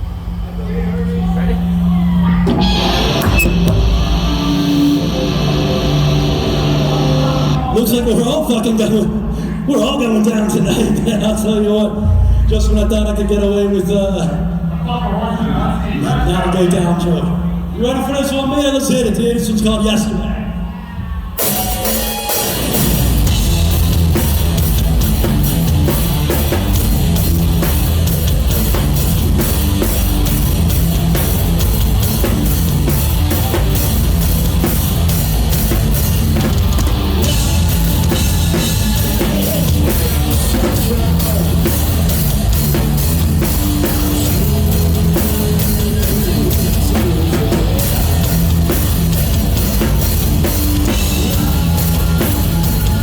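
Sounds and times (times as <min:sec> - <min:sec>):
rock band playing: 0:01.6 - 0:09.4, 0:21.3 - 0:53.0.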